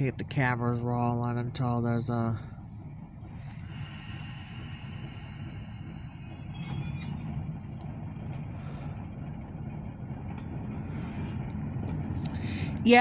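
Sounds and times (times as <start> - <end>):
freight train rumbling past: 0.0 - 13.0
high-pitched squeal: 3.3 - 11.3.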